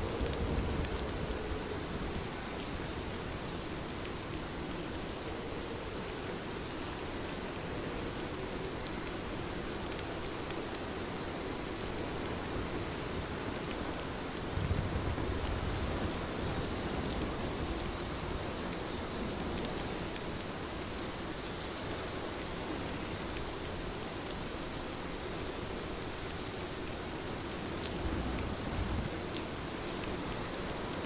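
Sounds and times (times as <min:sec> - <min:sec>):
heavy rain hissing: 0:00.0 - 0:31.0
low rumble: 0:27.9 - 0:29.1.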